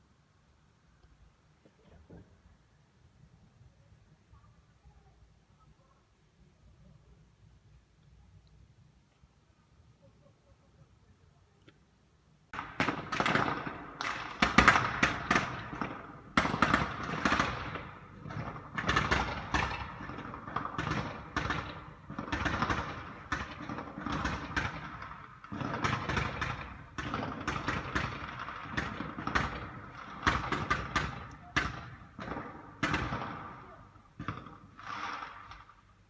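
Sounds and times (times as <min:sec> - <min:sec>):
fireworks banging and crackling: 0:12.5 - 0:36.0.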